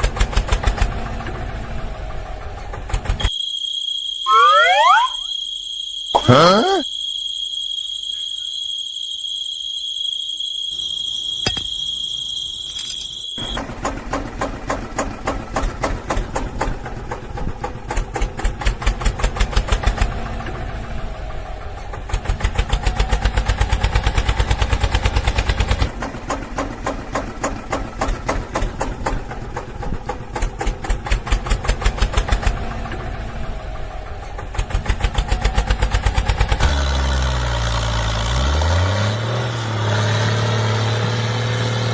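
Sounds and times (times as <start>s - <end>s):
steady high-pitched tone: 3.6s - 5.5s.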